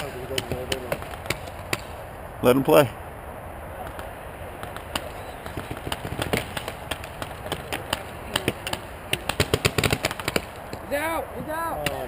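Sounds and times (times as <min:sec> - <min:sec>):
paintball markers firing: 0:03.9 - 0:10.8.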